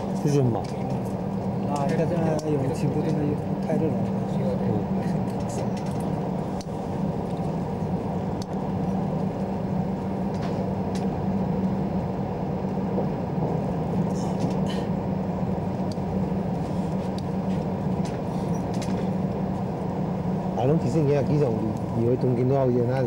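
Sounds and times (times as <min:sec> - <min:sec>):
constant hum: 0:00.0 - 0:23.0
train running rumble: 0:00.0 - 0:23.0.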